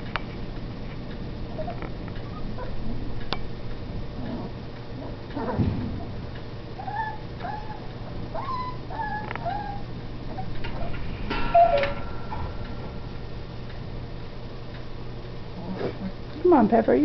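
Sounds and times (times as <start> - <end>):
rattling clatter with ringing tone: 10.3 - 14.9.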